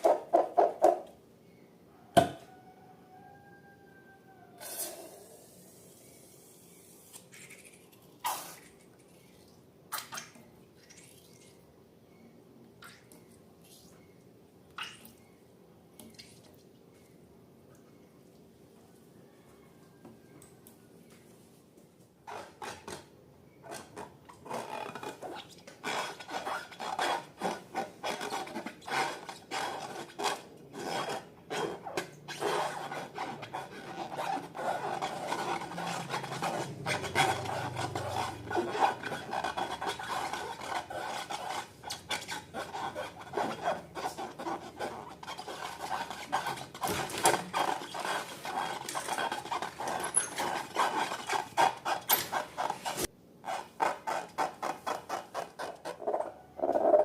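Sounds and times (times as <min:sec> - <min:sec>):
slime stirred and scraped in bowl: 0:22.3 - 0:57.0.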